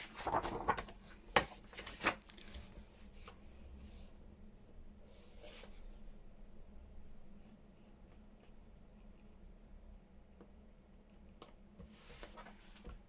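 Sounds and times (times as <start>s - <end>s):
paper rustling: 0.0s - 3.4s, 11.8s - 13.0s.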